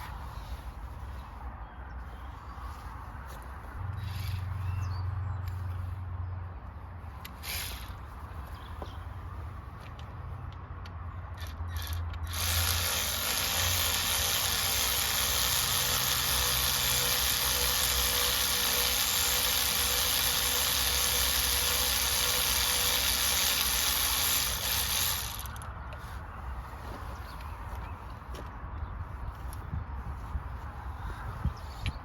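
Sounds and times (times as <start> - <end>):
ratchet clicks: 11.3 - 25.7
powered ratchet spinning: 11.4 - 25.7.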